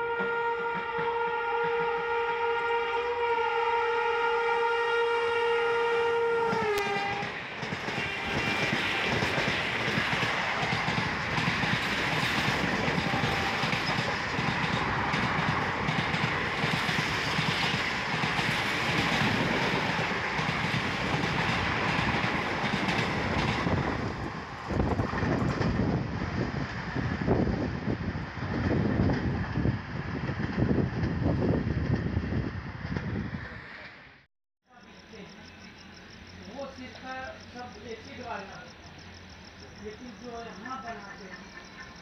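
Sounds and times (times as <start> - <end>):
train horn: 0.0 - 9.5, 12.9 - 14.1
gusty wind: 5.0 - 34.2
train coaches rushing past: 6.4 - 42.0.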